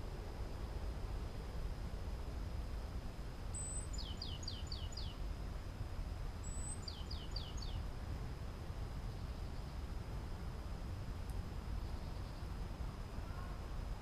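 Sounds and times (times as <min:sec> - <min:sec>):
small songbird singing: 0:03.5 - 0:05.2, 0:06.4 - 0:07.9, 0:11.7 - 0:12.6.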